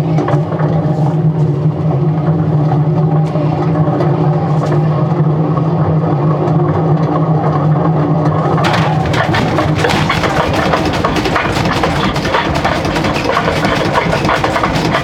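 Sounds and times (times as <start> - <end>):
washing machine motor hum: 7.8 - 15.0
washing machine knocking and clattering: 8.4 - 15.0.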